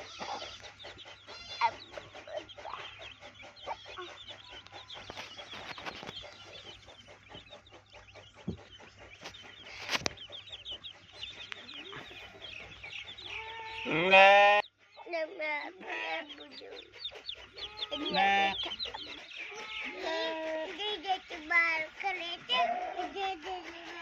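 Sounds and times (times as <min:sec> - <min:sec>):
chickens clucking and chirping: 0:00.0 - 0:24.0
loud drawn-out animal call: 0:13.3 - 0:14.6, 0:17.5 - 0:18.6.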